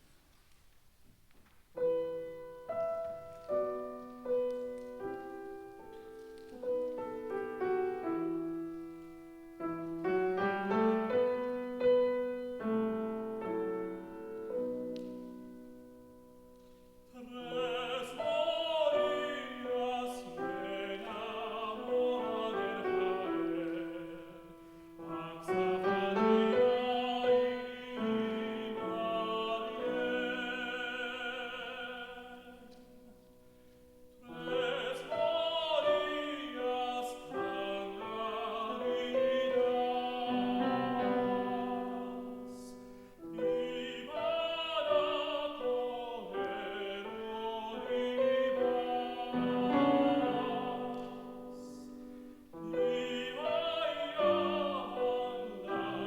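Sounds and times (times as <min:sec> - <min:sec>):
piano accompaniment: 0:01.6 - 0:56.0
operatic tenor singing: 0:17.0 - 0:33.1, 0:34.2 - 0:56.0.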